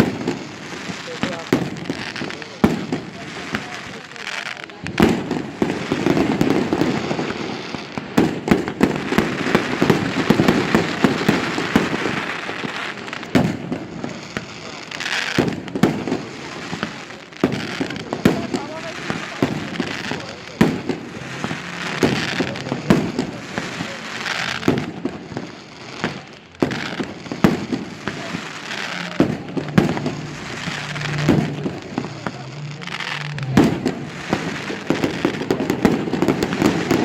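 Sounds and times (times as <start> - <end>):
firework shells bursting with bangs: 0.0 - 37.0
fireworks crackling: 0.0 - 37.0.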